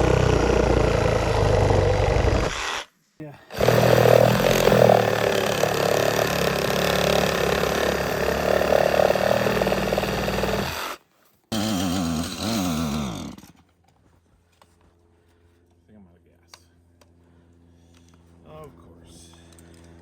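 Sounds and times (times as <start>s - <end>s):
small petrol engine running: 0.0s - 2.8s, 3.5s - 10.9s, 11.5s - 13.6s.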